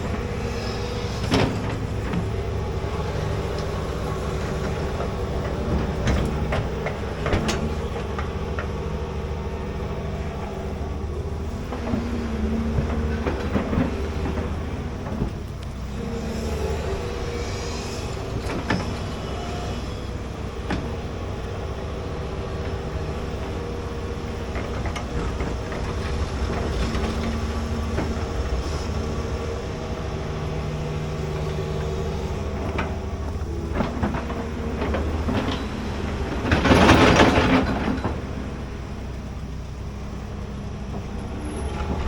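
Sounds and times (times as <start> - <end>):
hydraulic excavator running: 0.0 - 42.0
clanks and knocks: 32.6 - 38.4.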